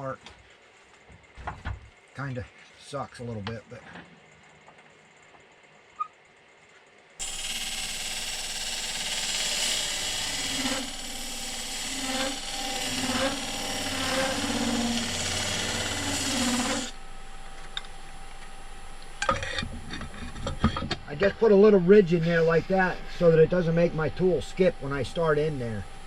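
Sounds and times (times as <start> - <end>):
turning tool scraping wood: 7.2 - 17.0, 21.5 - 23.4
lathe motor hum: 7.2 - 26.0.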